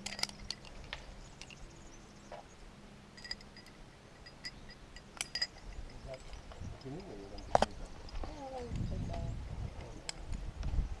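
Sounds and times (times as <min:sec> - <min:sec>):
climbing gear clinking: 0:00.0 - 0:01.8, 0:03.1 - 0:08.4.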